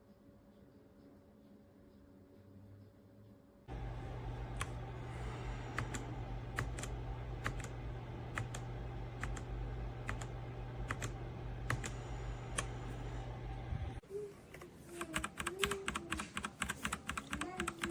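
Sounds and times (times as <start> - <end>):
steady low hum: 3.7 - 15.2.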